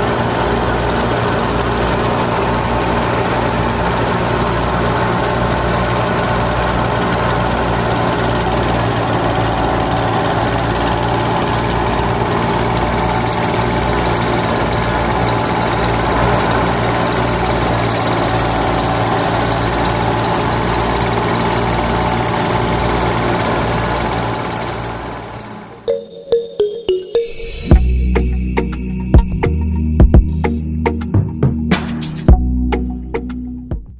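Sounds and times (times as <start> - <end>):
small thresher motor running: 0.0 - 25.8.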